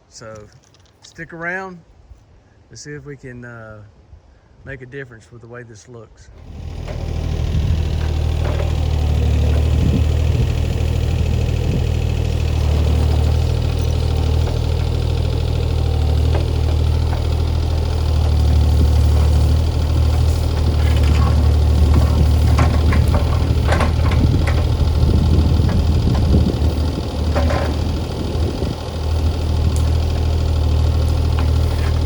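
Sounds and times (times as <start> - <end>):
diesel engine running: 6.4 - 32.0
sharp cracks and clatter: 6.4 - 32.0.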